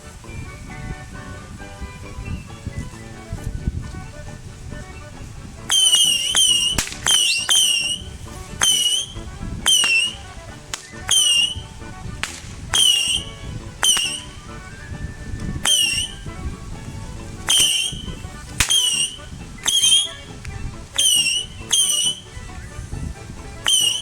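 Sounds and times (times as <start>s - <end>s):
whistling firework cracks: 5.7s - 9.1s, 9.7s - 11.6s, 12.2s - 14.3s, 15.7s - 16.2s, 17.5s - 19.1s, 23.7s - 24.0s.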